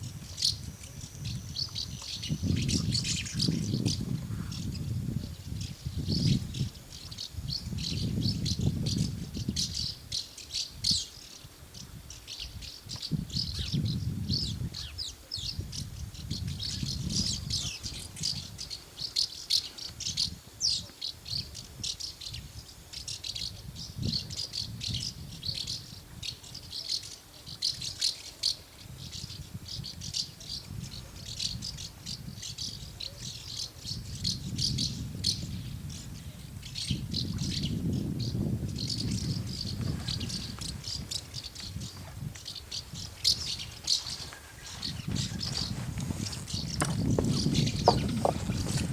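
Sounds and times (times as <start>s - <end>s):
swallows twittering: 0.2s - 48.9s.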